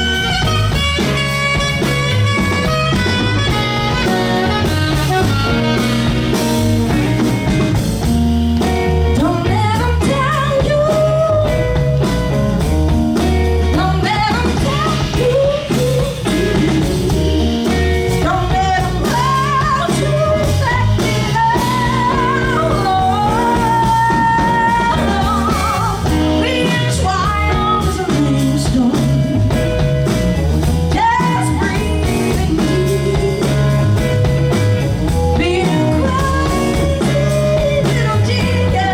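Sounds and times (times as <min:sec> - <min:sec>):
lead guitar bent notes: 0:00.0 - 0:09.2
blues-rock band playing live: 0:00.0 - 0:38.9.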